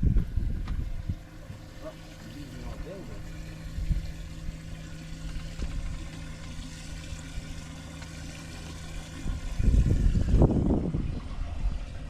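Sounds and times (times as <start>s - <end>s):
small motor humming: 0.0s - 12.0s
low rumble: 8.6s - 12.0s.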